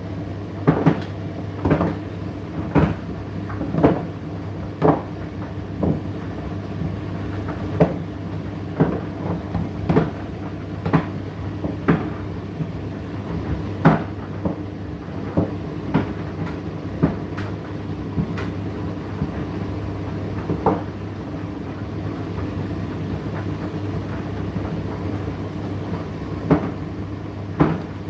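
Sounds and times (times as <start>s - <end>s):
tumble dryer motor and fan hum: 0.0s - 28.0s
load knocking in dryer drum: 27.5s - 28.0s.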